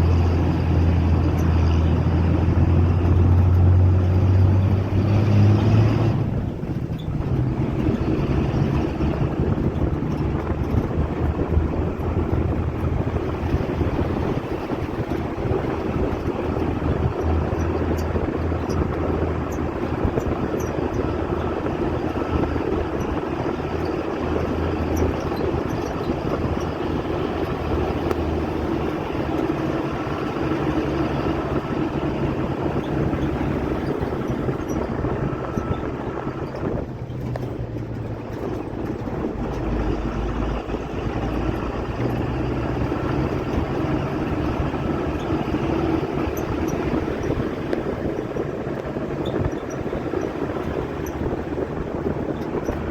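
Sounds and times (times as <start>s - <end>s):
constant rushing noise: 0.0s - 52.9s
vehicle engine running: 0.0s - 52.9s.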